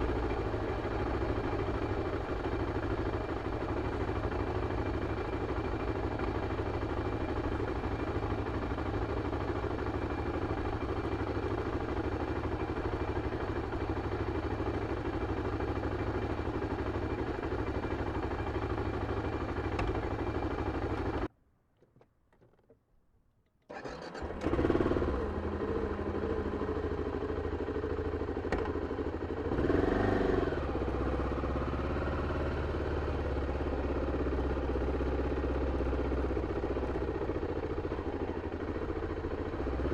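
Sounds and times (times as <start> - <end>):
motorcycle engine running: 0.0 - 21.3, 23.8 - 39.9
engine starting: 23.7 - 25.0
engine revving: 23.7 - 25.4, 29.5 - 32.5.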